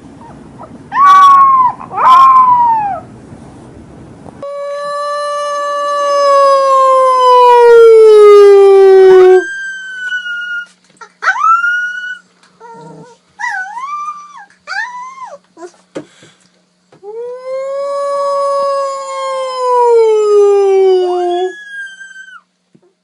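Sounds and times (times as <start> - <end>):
dog whining: 0.2 - 3.1, 4.4 - 15.8, 18.5 - 22.5
dog howling: 0.9 - 3.1, 4.4 - 15.4, 17.1 - 22.5.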